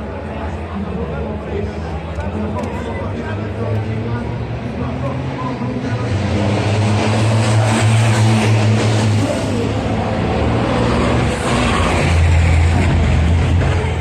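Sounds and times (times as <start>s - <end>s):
diesel truck engines droning: 0.0s - 14.0s.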